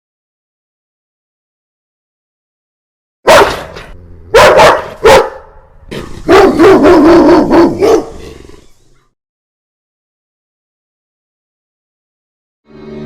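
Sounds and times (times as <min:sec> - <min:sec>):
dog barking: 0:03.3 - 0:05.6, 0:06.2 - 0:08.3.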